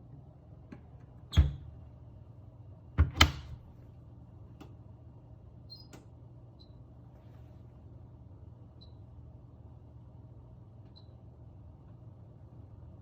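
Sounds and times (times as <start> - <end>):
washing machine door knocks: 3.0 - 3.6.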